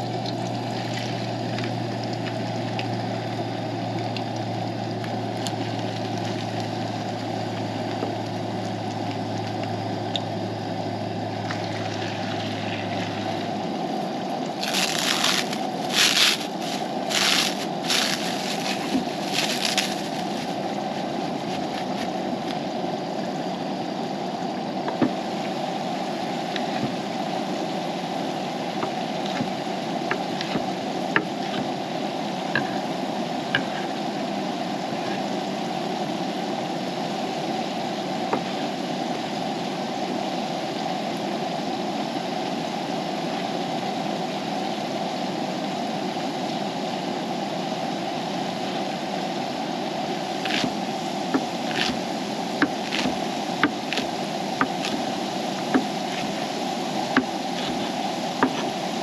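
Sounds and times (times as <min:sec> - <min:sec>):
sharp pops and crackles: 0:14.6 - 0:22.6
food cooking hiss: 0:14.6 - 0:22.9.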